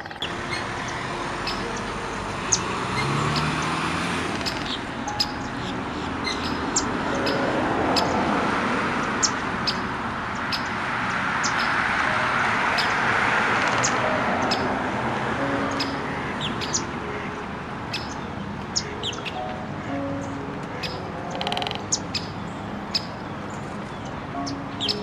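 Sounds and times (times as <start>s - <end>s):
small birds chirping: 0.0s - 8.2s, 11.4s - 11.8s, 17.9s - 25.0s.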